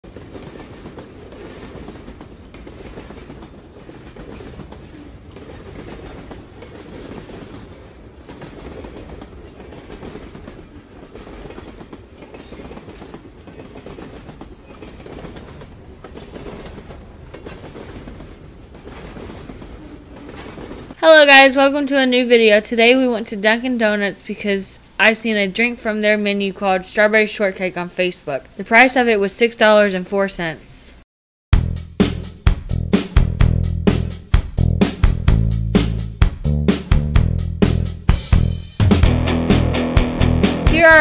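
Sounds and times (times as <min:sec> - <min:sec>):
wheels clicking over rail joints: 0:00.0 - 0:21.0
freight train rumbling: 0:00.0 - 0:29.2, 0:32.1 - 0:41.0.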